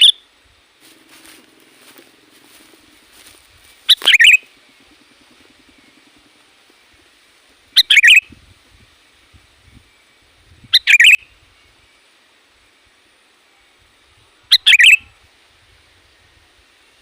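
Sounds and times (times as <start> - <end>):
bird singing: 0.0 - 0.3, 2.0 - 7.0, 7.7 - 8.4, 9.6 - 12.3, 14.5 - 15.1.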